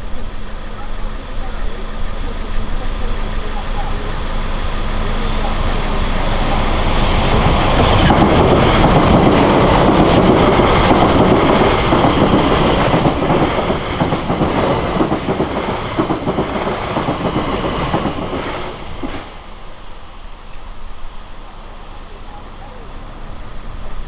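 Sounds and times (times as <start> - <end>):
train wheels clattering: 6.4 - 19.4.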